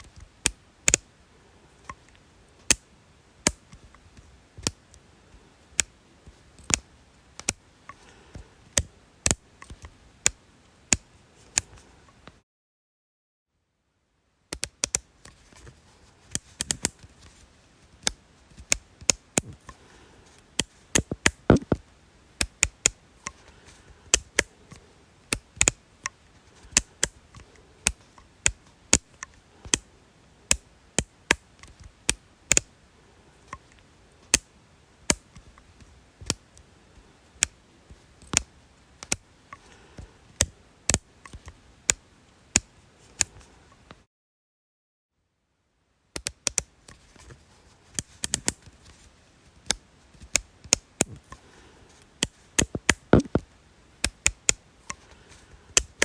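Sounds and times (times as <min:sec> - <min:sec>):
sharp dry clicks: 0:06.6 - 0:08.1, 0:20.6 - 0:21.8, 0:22.4 - 0:23.4, 0:24.1 - 0:29.9, 0:46.2 - 0:46.7, 0:52.2 - 0:55.2.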